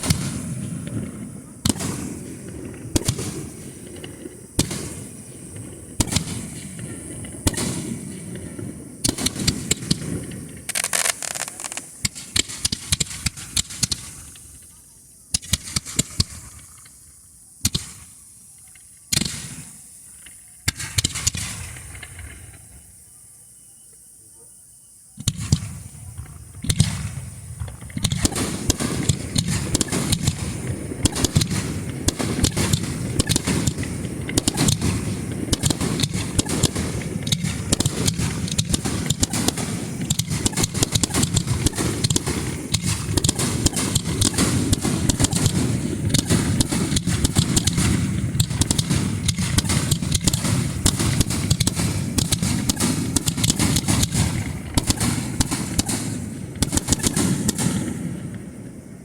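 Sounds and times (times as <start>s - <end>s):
fireworks barrage of bangs: 0.0s - 23.0s, 25.0s - 59.0s
fireworks launches and bursts: 0.0s - 23.3s, 24.9s - 59.0s.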